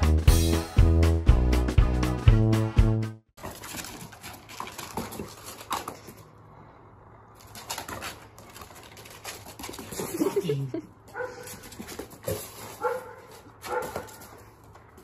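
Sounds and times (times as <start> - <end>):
dog claws clicking on tiles: 3.4 - 6.3, 7.4 - 10.4.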